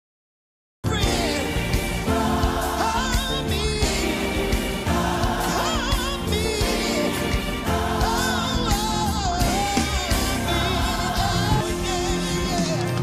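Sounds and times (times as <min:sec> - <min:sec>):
full band accompaniment: 0:00.8 - 0:13.0
choir singing: 0:00.9 - 0:13.0
solo voice singing: 0:05.4 - 0:13.0.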